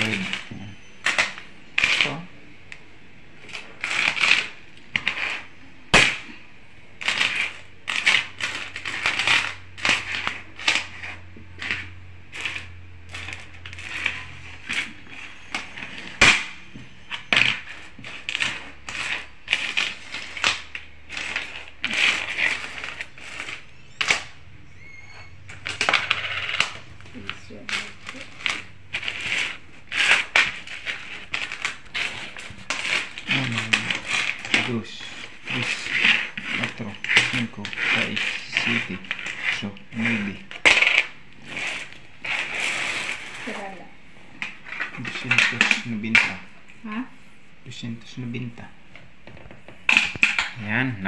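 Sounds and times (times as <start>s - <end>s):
coins clinking on wooden table: 25.4s - 34.7s, 40.5s - 41.1s.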